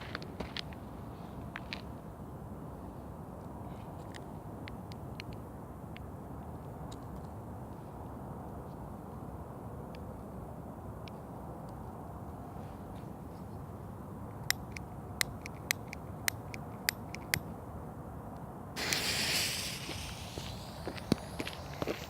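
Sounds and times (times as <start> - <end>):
firecracker fuse hissing: 18.8 - 22.0
small crackles: 18.8 - 22.0.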